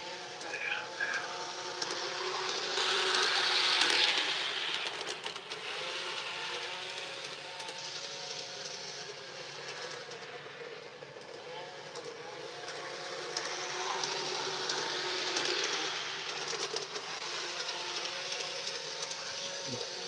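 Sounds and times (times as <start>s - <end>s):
model train running on track: 0.0s - 20.0s.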